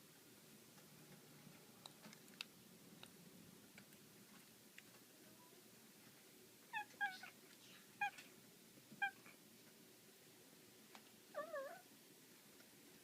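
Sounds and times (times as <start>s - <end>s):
cat chirping: 6.7s - 8.2s, 9.0s - 9.4s, 11.3s - 11.9s.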